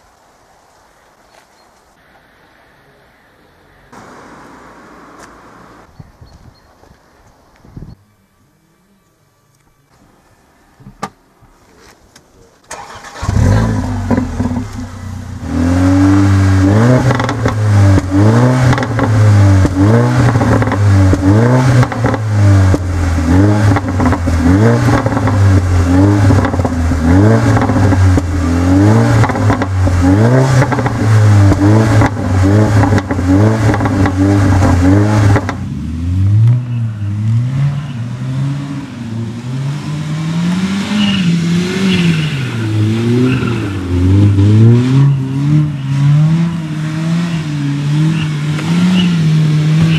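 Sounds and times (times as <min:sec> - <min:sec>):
exhaust crackling: 0:11.7 - 0:49.9
car engine revving: 0:12.7 - 0:49.9.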